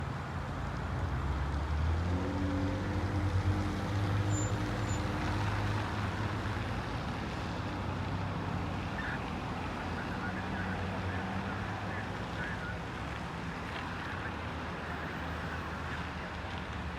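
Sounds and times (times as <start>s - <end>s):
fire engine pulling away: 0.3s - 16.9s.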